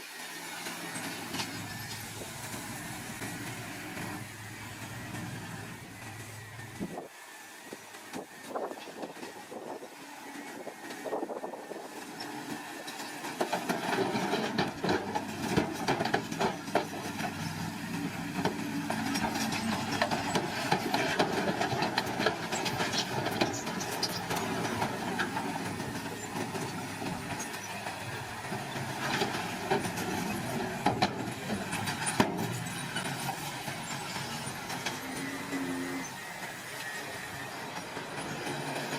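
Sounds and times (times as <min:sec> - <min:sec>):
diesel engine under load: 0:00.1 - 0:38.9
steel tracks clanking and squealing: 0:00.2 - 0:38.9.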